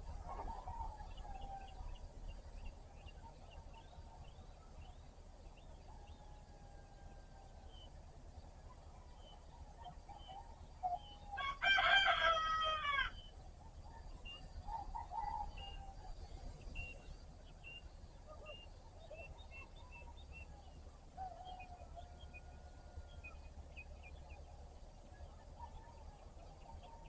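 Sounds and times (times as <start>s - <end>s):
small birds chirping: 0.0s - 27.0s
rooster crowing: 11.3s - 13.3s.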